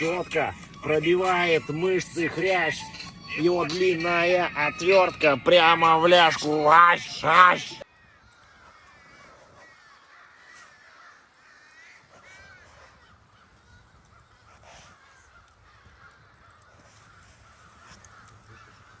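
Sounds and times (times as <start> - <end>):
louder arching bird calls: 7.4 - 19.0.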